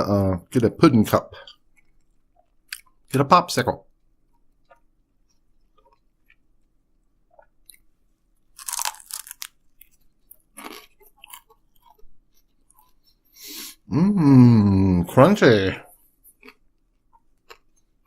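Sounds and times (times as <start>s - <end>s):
crunching crisp crust: 8.5s - 13.0s
biting and chewing: 8.5s - 13.2s.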